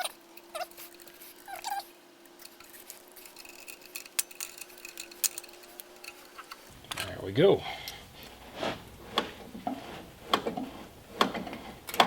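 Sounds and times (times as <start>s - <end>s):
small metal parts clinking: 0.0s - 7.1s
faint steady hum: 0.0s - 12.0s.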